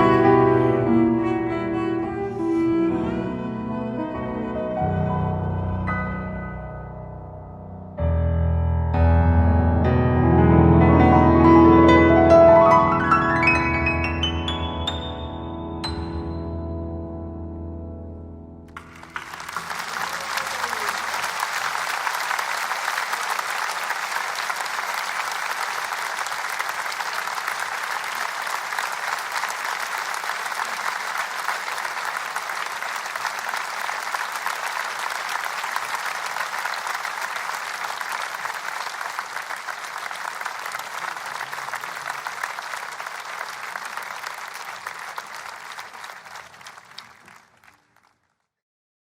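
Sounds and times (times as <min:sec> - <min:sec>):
large audience applauding: 0:18.7 - 0:48.4.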